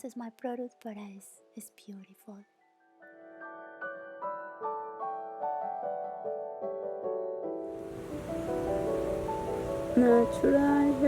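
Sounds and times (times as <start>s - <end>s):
gentle piano music: 2.4s - 11.0s.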